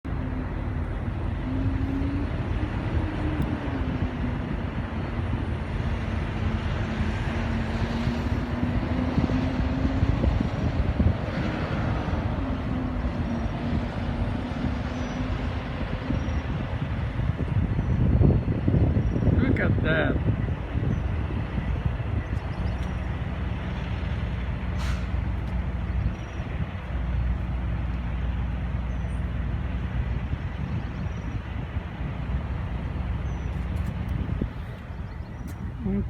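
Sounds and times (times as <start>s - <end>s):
vehicle rumble with droning: 0.0s - 36.0s.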